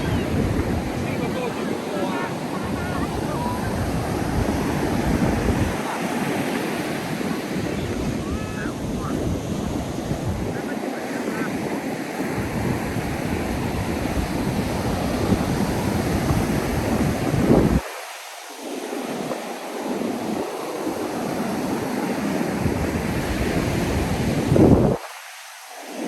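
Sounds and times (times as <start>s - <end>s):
wind buffeting microphone: 0.0s - 17.8s, 22.5s - 25.0s
ocean surf washing onto beach: 0.0s - 26.0s.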